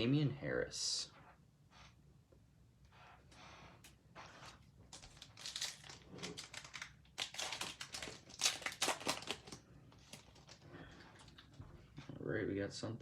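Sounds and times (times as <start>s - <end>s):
plastic wrapper crinkling: 4.8s - 11.5s.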